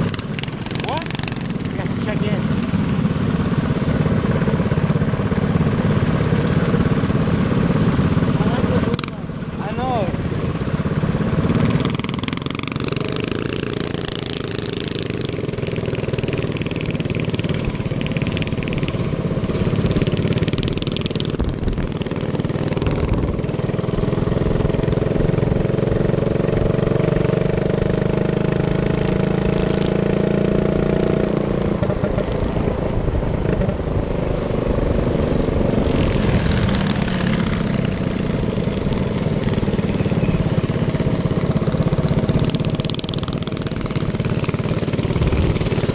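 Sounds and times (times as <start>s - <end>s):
minibike engine running: 0.0s - 45.9s.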